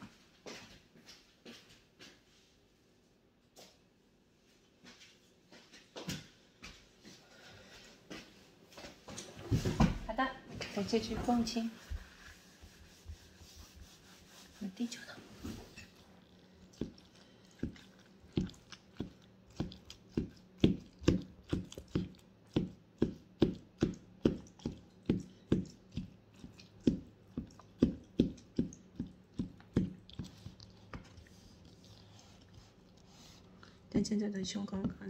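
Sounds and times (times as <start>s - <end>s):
wet chewing mouth smacks: 15.8s - 22.6s, 24.4s - 33.8s.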